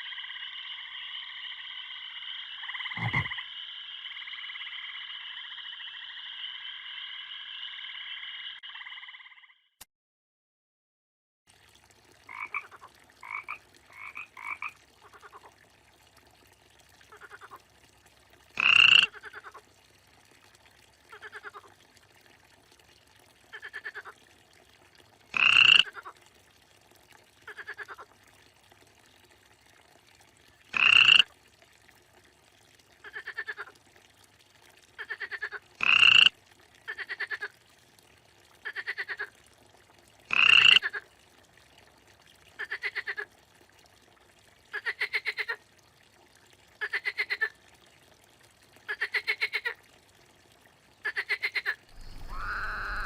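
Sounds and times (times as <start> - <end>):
frogs croaking: 0.0 - 9.7, 12.3 - 15.5, 18.6 - 19.6, 25.3 - 26.1, 30.7 - 31.3, 35.0 - 37.5, 40.3 - 41.0, 51.1 - 53.0.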